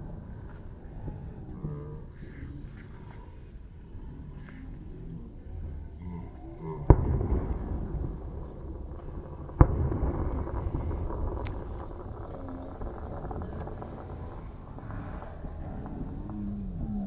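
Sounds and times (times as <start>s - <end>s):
long rumbling tail: 0.0s - 17.0s
fireworks bangs: 6.9s - 16.2s.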